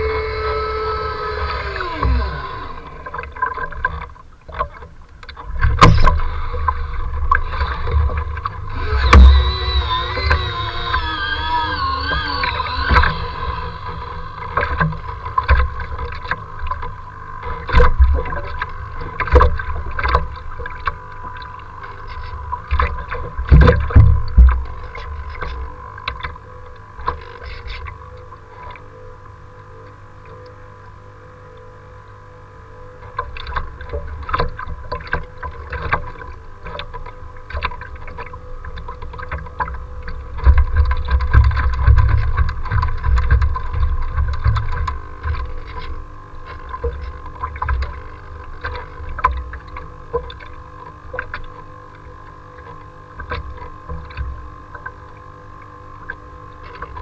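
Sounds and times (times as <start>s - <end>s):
faint high hum: 0.0s - 27.2s
waves splashing against boat: 0.0s - 28.8s, 33.0s - 57.0s.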